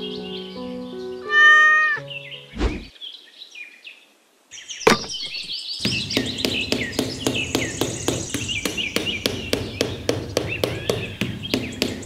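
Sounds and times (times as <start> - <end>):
birds chirping and twittering: 0.0 - 12.0.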